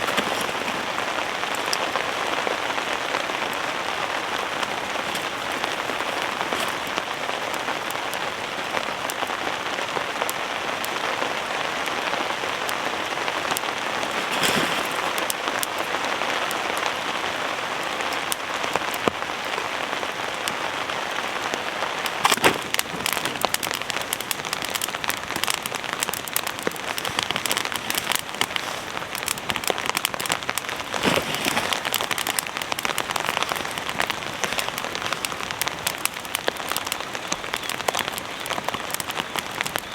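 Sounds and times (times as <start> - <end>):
heavy rain on fabric shelter: 0.0 - 39.9
heavy drops ticking: 21.5 - 39.9.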